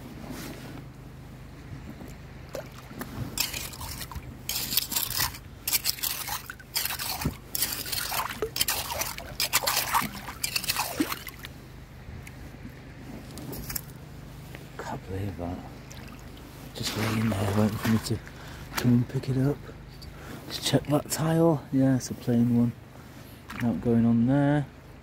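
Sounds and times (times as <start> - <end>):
river water splashing: 2.1 - 11.8, 15.8 - 19.0, 23.4 - 23.8.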